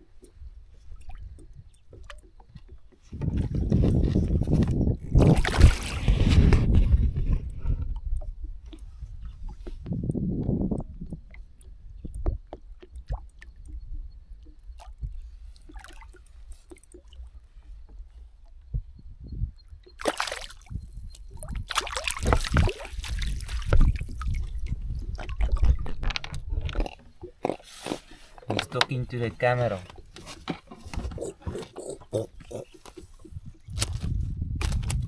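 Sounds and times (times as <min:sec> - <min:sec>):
water sloshing and splashing: 0:00.0 - 0:35.0
low wind rumble: 0:03.1 - 0:15.5, 0:17.6 - 0:20.0, 0:20.6 - 0:27.3, 0:32.1 - 0:35.0.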